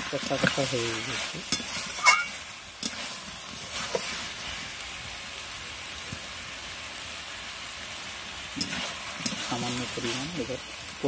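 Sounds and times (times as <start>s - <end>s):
spatula stirring: 0.0s - 4.7s, 8.5s - 10.7s
curry sizzling in oil: 0.0s - 11.0s.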